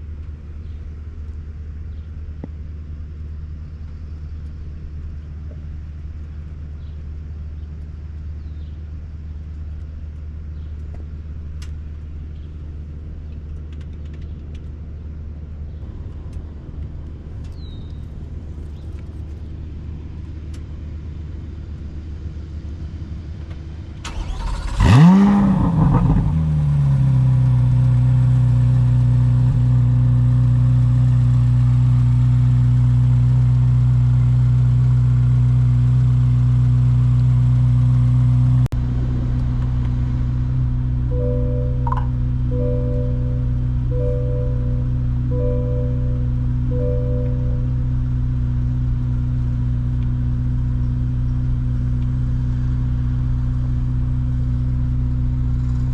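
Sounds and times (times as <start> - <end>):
car engine starting and idling: 9.0 - 55.9
low background hum: 38.7 - 55.9.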